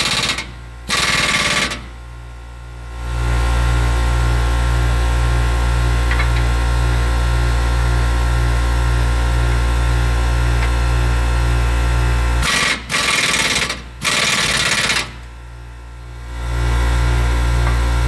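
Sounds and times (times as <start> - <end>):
air impact wrench hammering: 0.0 - 1.9, 12.4 - 15.2
air compressor humming: 0.0 - 2.2.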